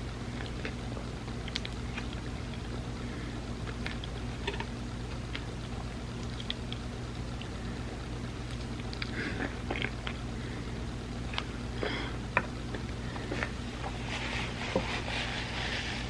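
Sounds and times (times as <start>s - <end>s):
close chewing: 0.3s - 2.8s, 3.6s - 7.6s, 8.2s - 10.3s.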